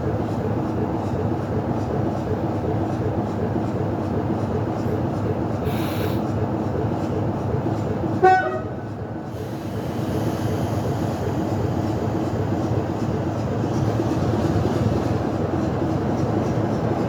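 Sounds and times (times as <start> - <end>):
train wheels and engine rumble: 0.0 - 17.0
short high train toot: 8.2 - 8.8.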